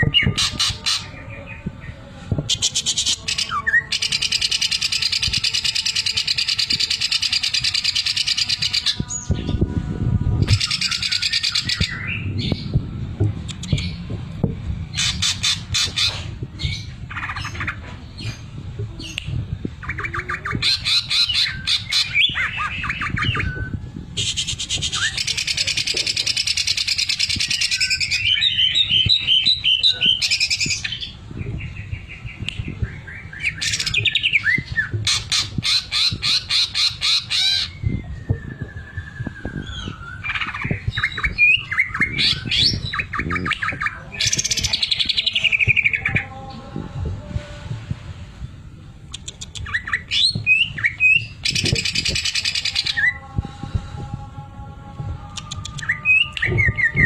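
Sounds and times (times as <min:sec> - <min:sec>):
bird singing varied song: 0:10.4 - 0:12.9, 0:14.8 - 0:23.8, 0:24.4 - 0:46.9, 0:49.1 - 0:53.4.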